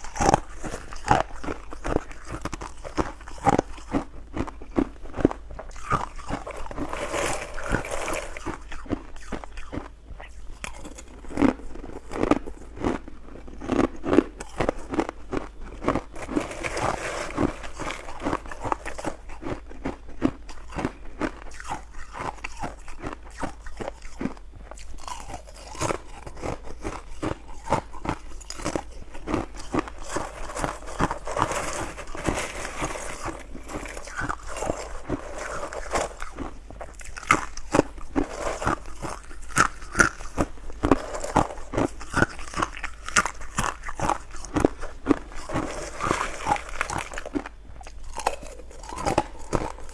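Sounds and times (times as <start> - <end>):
ice crunching being chewed: 0.0 - 49.9.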